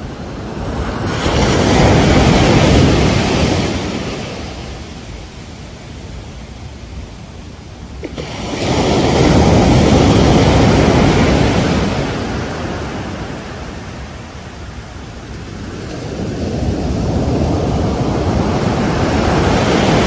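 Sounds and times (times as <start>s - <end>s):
ocean waves breaking: 0.0s - 20.0s
wind rumble on microphone: 0.0s - 20.0s.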